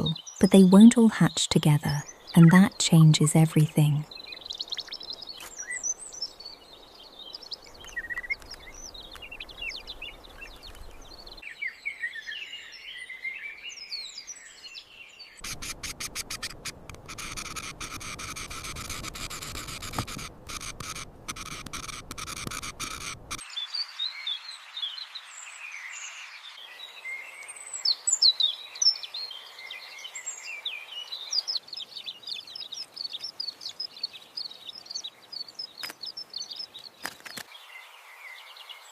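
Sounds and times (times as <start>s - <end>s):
small birds chirping: 0.0s - 38.9s
hissing with rapid ticks: 15.4s - 23.4s.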